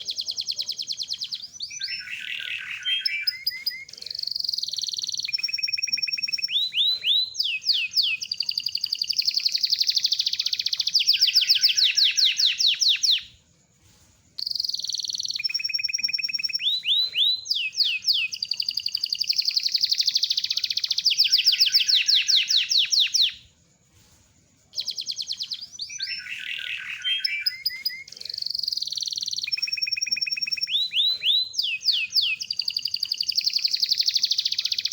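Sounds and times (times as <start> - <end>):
canary singing trills: 0.0 - 13.4, 14.4 - 23.5, 24.7 - 34.9.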